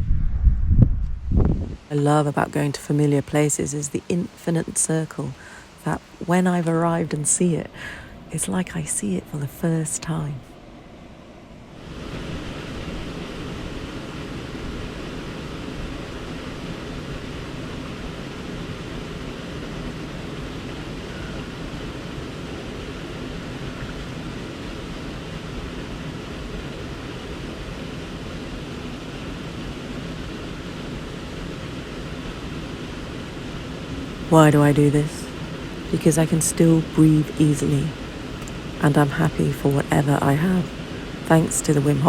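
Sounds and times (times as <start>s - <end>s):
running water rushing: 40.0s - 42.0s.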